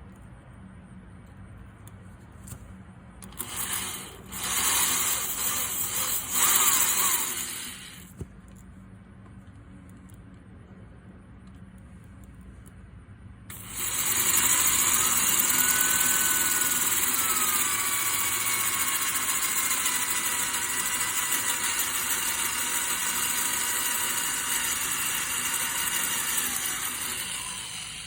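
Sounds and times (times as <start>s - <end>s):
electric power tool motor whining: 3.3s - 8.1s, 13.5s - 28.0s.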